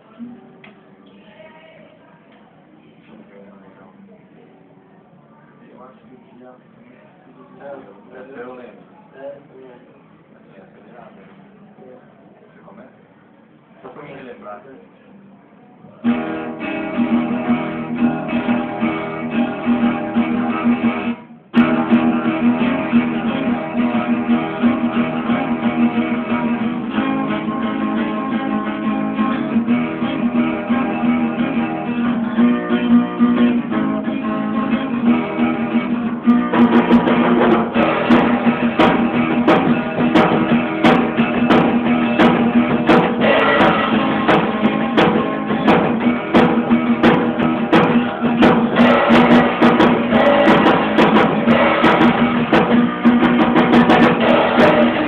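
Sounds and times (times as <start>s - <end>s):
acoustic guitar strumming: 16.0s - 55.0s.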